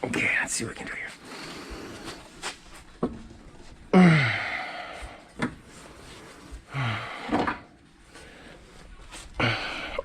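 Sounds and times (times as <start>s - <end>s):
man grunting with effort: 3.9s - 4.7s.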